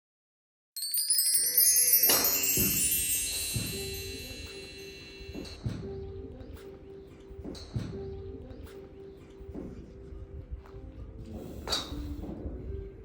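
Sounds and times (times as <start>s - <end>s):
shimmering wind chime: 0.8s - 6.7s.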